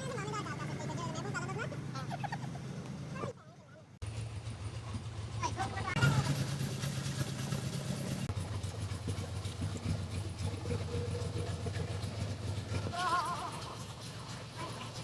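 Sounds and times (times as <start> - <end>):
tractor engine idling: 4.0 - 15.0.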